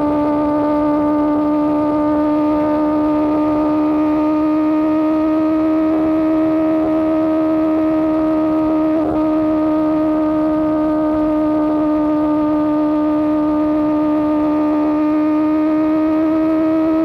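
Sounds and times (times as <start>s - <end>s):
motorbike engine at high revs: 0.0s - 17.0s.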